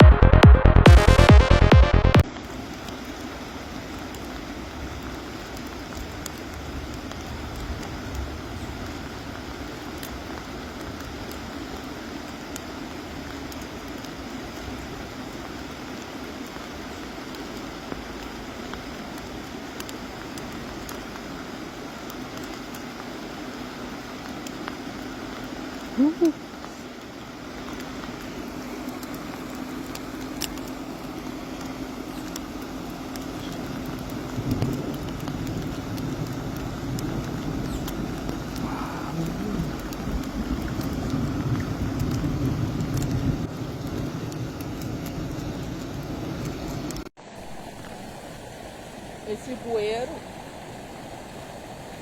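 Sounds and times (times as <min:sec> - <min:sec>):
rush of noise: 0:00.0 - 0:13.7, 0:33.2 - 0:49.2
raindrop ticks: 0:00.0 - 0:47.1
heavy rain: 0:00.0 - 0:52.0
light ticks: 0:27.6 - 0:42.3, 0:42.9 - 0:43.2.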